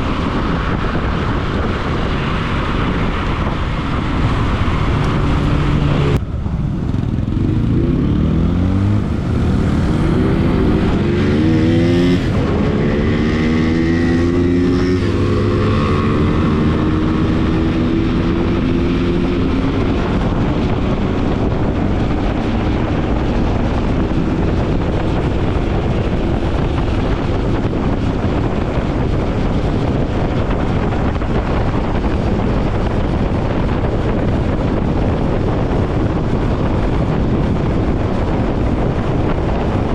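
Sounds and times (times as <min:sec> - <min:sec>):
motorcycle engine accelerating: 0:00.0 - 0:39.9
wind noise on microphone: 0:00.0 - 0:39.9.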